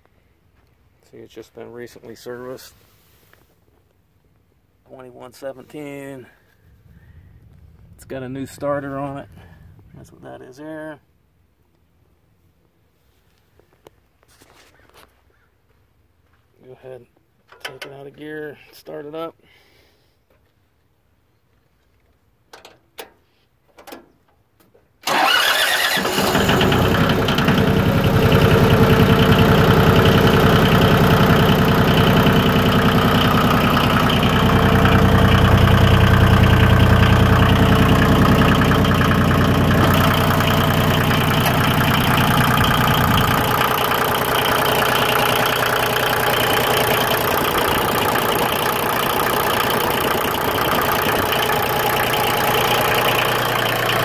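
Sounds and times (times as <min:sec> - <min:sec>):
diesel engine running: 0:25.0 - 0:54.0
starter cranking: 0:25.1 - 0:54.0.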